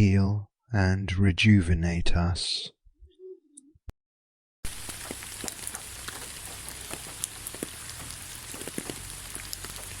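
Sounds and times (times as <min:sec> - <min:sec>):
rain falling: 0:04.7 - 0:10.0
raindrop ticks: 0:04.7 - 0:10.0.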